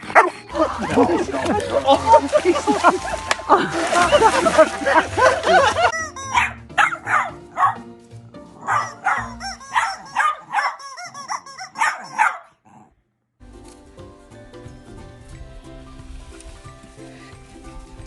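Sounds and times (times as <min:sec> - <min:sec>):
background music: 0:00.0 - 0:12.4, 0:13.4 - 0:18.0
dog barking: 0:00.1 - 0:00.4, 0:06.3 - 0:07.8, 0:08.6 - 0:12.9.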